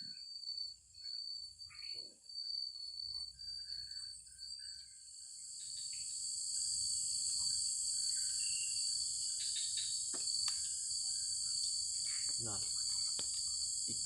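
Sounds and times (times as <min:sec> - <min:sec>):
insects trilling: 0:00.0 - 0:14.0
high hissing insect buzz: 0:04.3 - 0:14.0.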